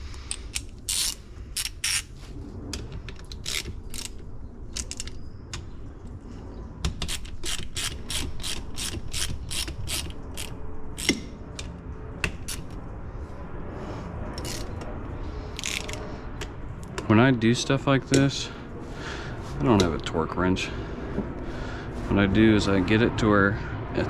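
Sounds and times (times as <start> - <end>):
ratchet wrench clicking: 0.3 - 2.1, 7.0 - 11.2.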